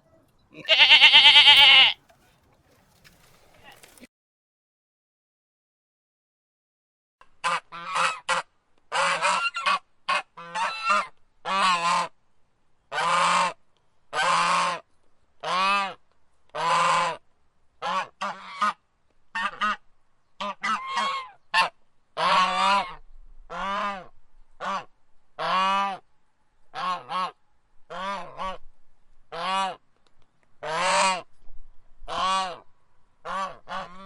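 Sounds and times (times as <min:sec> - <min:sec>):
waterfowl honking: 0:00.0 - 0:02.4, 0:20.4 - 0:24.0.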